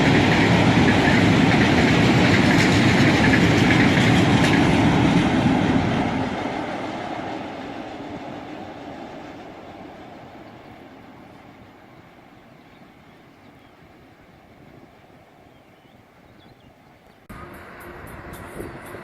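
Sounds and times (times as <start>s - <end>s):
freight train wheels clattering: 0.0s - 10.0s.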